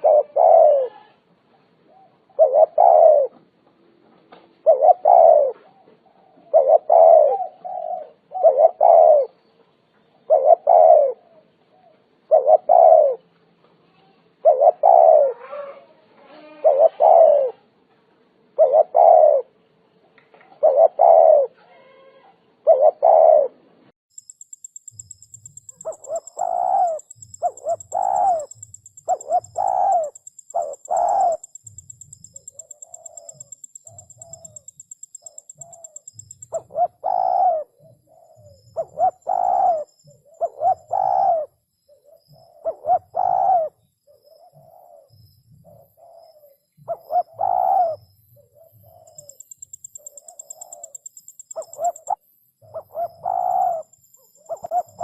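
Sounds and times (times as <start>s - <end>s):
dove cooing: 0.0s - 1.2s, 1.9s - 3.4s, 4.6s - 9.4s, 10.3s - 13.2s, 14.4s - 17.7s, 18.6s - 19.6s, 20.6s - 23.6s, 24.8s - 55.0s
fainter coos: 0.0s - 1.2s, 14.6s - 17.6s.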